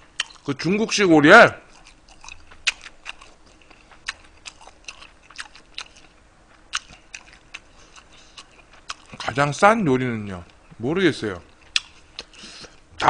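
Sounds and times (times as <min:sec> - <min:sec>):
person chewing food: 0:00.0 - 0:00.5, 0:01.6 - 0:09.5, 0:11.4 - 0:12.9.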